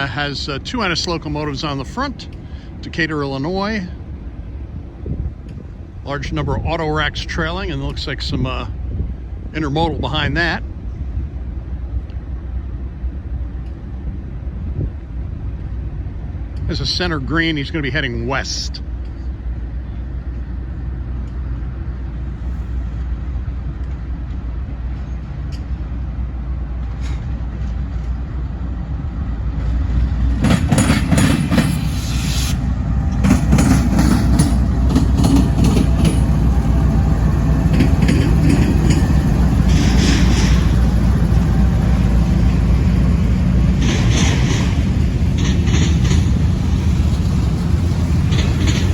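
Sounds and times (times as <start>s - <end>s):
train low rumble: 0.0s - 48.9s
train wheels clattering and clanking: 29.6s - 48.9s.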